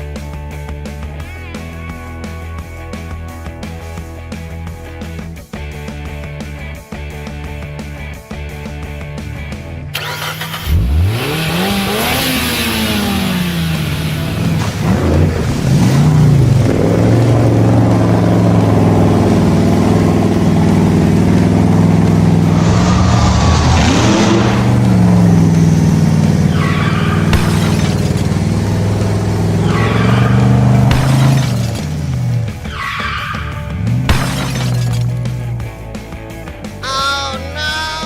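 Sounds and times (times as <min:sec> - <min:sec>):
monster truck engine revving: 0:09.9 - 0:35.8.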